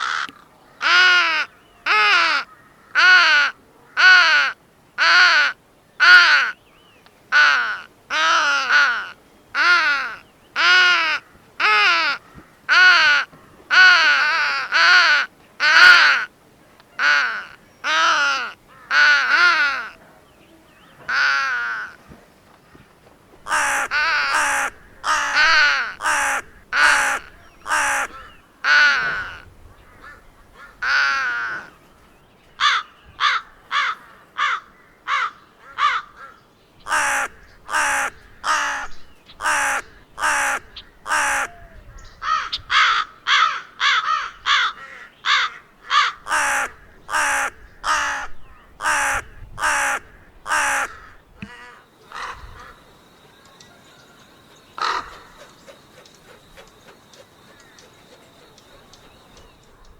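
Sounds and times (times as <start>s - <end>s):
crow cawing: 0.0s - 6.6s, 7.3s - 16.3s, 17.0s - 20.0s, 21.1s - 22.0s, 22.6s - 31.7s, 32.6s - 59.9s.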